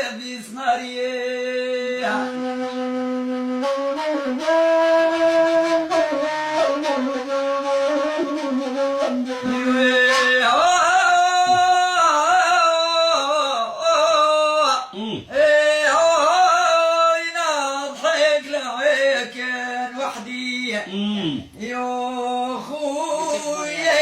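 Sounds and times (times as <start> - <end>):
flute melody: 2.0 - 11.6.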